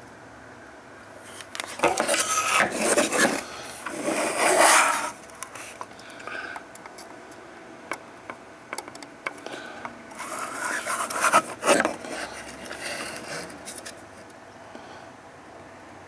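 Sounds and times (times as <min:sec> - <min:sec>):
rubbing and scraping: 0:01.3 - 0:05.8, 0:10.2 - 0:14.0.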